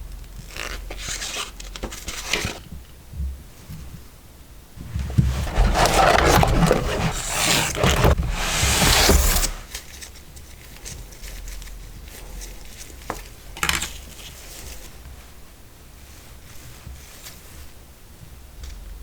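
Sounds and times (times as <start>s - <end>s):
packaging scraping and rustling: 4.8s - 9.8s.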